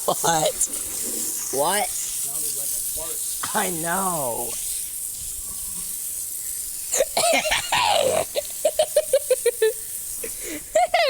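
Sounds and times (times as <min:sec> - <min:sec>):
child laughing: 0:00.0 - 0:00.7, 0:06.9 - 0:11.0.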